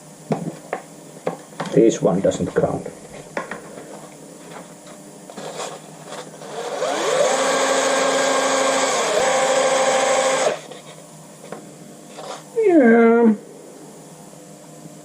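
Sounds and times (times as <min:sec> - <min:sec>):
electric drill spinning: 0:05.3 - 0:10.7.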